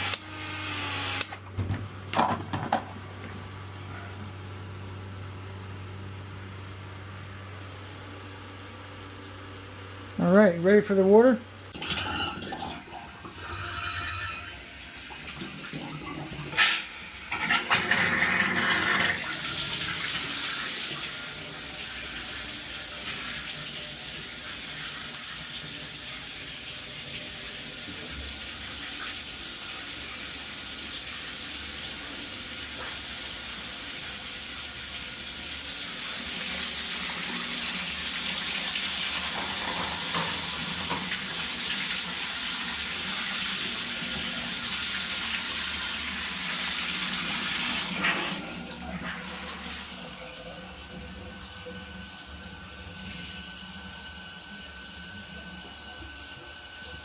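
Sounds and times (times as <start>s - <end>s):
water rushing from shower valve: 11.8s - 57.0s.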